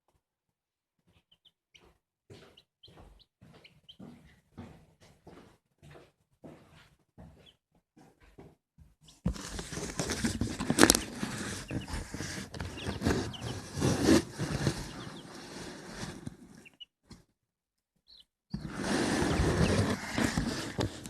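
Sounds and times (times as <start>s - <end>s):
chicks peeping: 1.1s - 4.3s, 9.1s - 16.9s, 18.0s - 21.0s
rustling and scuffling: 2.3s - 16.7s, 18.6s - 21.0s.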